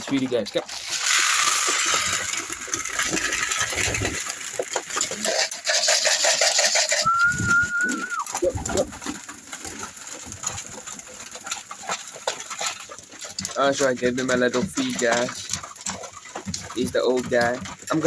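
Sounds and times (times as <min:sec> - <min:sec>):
pigeons cooing: 0:02.2 - 0:13.5
high whistle-like note: 0:07.0 - 0:08.3.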